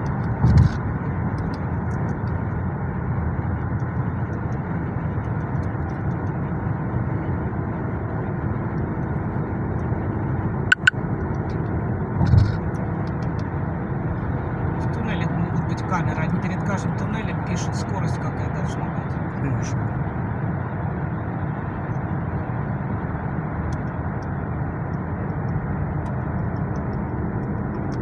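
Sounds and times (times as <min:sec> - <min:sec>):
car road and engine rumble: 0:00.0 - 0:28.0
sharp clicks: 0:10.7 - 0:11.6.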